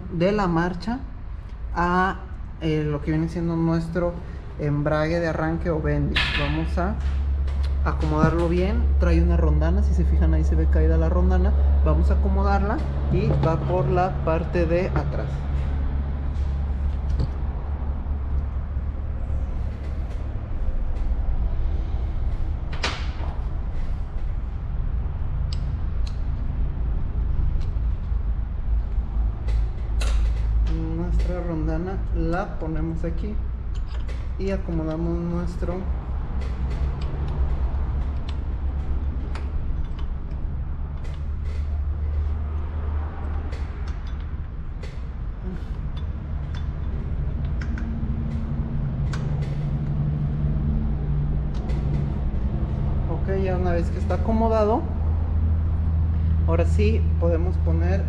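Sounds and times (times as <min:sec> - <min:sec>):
low background rumble: 0:00.0 - 0:58.0
metallic clicks of engine parts: 0:33.6 - 0:35.0, 0:36.1 - 0:50.3
metal engine parts clinking: 0:38.8 - 0:41.5, 0:45.6 - 0:47.8.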